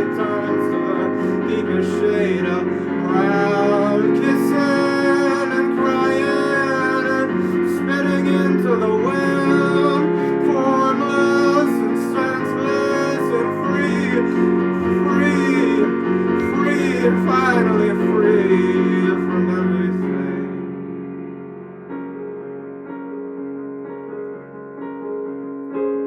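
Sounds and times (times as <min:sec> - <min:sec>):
person singing long wavering notes: 0:00.0 - 0:20.5
piano chords: 0:00.0 - 0:26.0.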